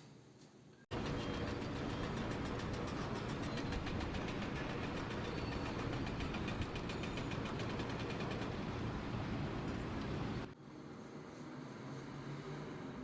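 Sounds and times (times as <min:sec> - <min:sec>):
machine engine running: 0:00.9 - 0:10.6.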